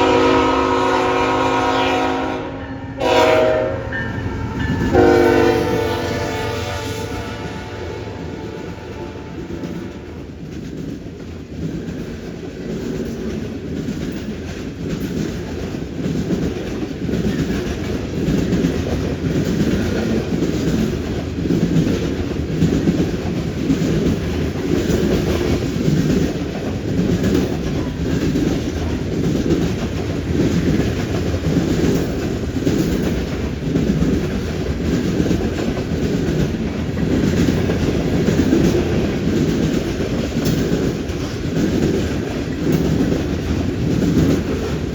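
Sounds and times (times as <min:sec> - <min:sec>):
freight train wheels clacking: 0:00.0 - 0:44.9.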